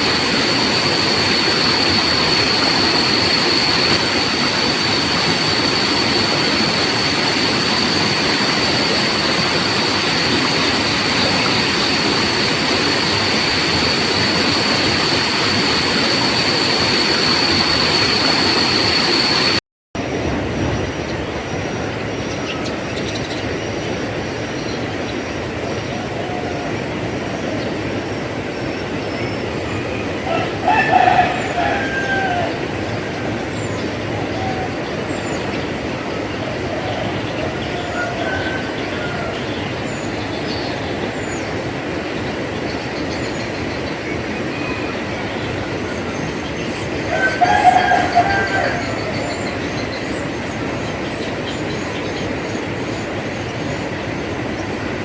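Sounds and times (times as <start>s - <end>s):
high insect drone: 0.0s - 19.6s
flowing water rushing: 0.0s - 20.6s.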